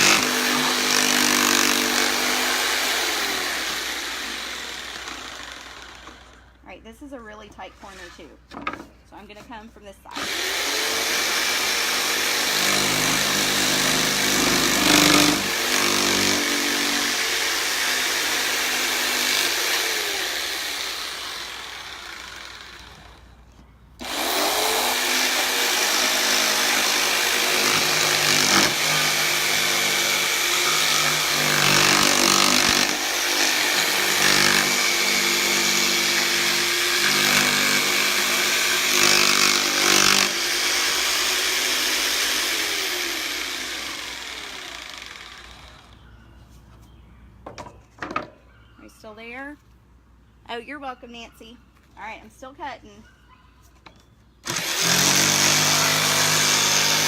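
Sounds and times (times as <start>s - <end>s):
jigsaw cutting wood: 0.0s - 6.6s, 10.1s - 23.3s, 24.0s - 46.0s, 54.4s - 57.0s.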